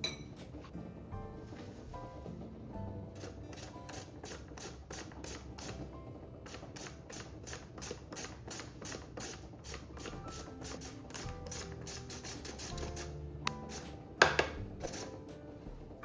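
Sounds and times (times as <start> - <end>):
potato rasping on metal grater: 6.5 - 13.9, 14.8 - 15.2.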